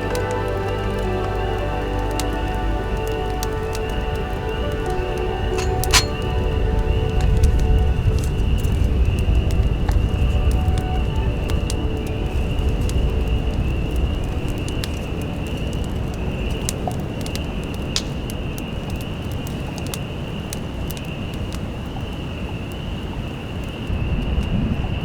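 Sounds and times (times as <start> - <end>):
wind rumbling: 0.0 - 25.0
sharp ticks and pops: 11.6 - 24.6.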